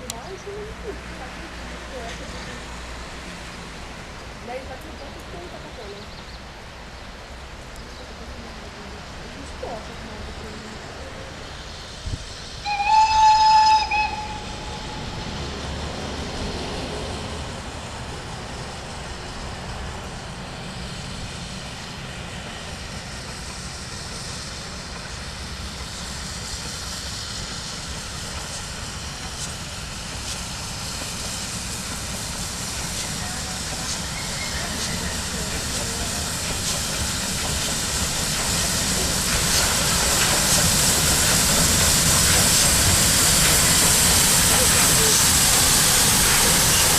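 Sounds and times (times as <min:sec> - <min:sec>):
train hiss and rumble: 0:00.0 - 0:46.9
steam whistle blast: 0:12.6 - 0:15.1.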